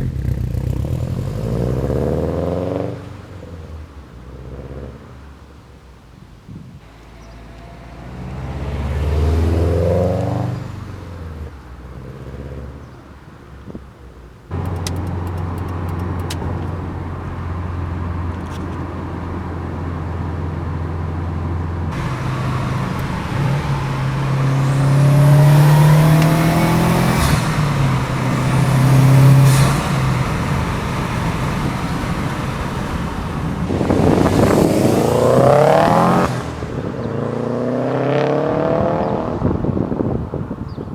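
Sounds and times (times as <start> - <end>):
car engine revving: 0.0 - 3.4, 6.8 - 12.7, 14.5 - 39.9
low exhaust drone: 14.5 - 36.6.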